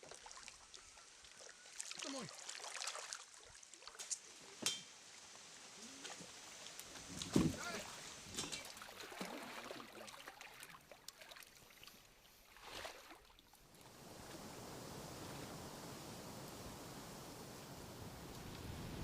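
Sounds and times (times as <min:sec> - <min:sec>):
water splashing and sloshing: 0:00.0 - 0:14.4
steady hiss: 0:13.8 - 0:19.0.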